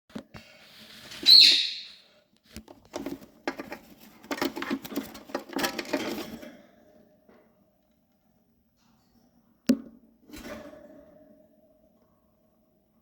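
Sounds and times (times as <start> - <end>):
parakeet chicks screeching: 1.2 - 2.0.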